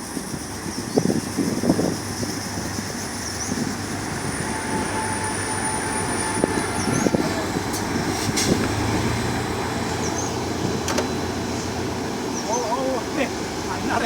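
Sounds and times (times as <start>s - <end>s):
train wheels rumbling on rails: 0.0s - 14.0s
knocks of train: 10.6s - 11.4s.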